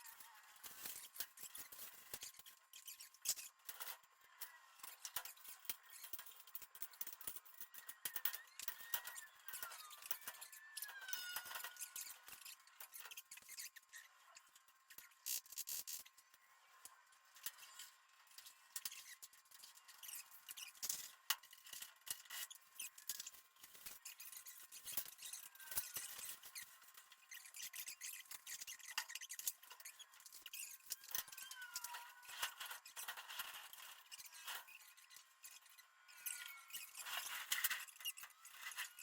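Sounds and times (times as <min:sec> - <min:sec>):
squeaky chirps: 0:00.0 - 0:03.5, 0:07.0 - 0:16.5, 0:17.6 - 0:39.0.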